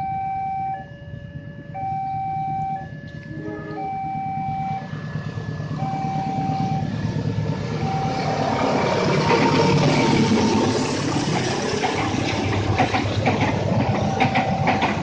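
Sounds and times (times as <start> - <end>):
beeping warning tone: 0.0 - 5.0, 5.7 - 7.0, 7.7 - 8.5, 14.3 - 15.0
train rumbling: 2.8 - 15.0.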